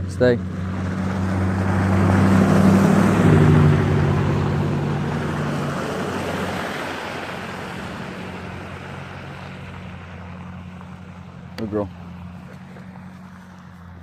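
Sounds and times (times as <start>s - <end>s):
car driving past: 0.0s - 14.0s.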